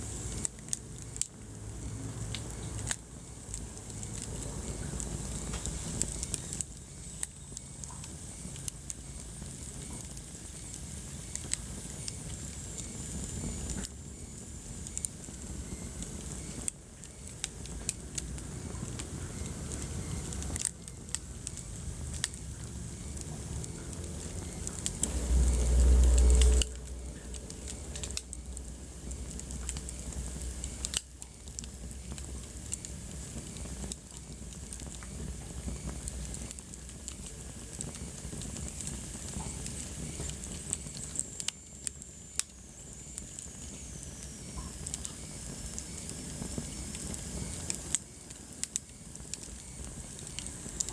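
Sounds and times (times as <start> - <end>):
wood fire crackling: 0.0 - 50.9
loud low rumble: 22.8 - 30.6.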